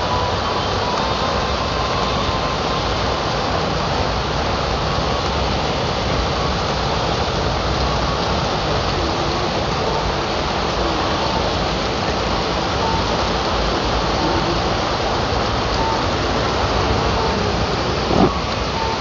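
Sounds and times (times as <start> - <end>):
rain falling steadily: 0.0 - 19.0
low thunder rumble: 14.6 - 19.0.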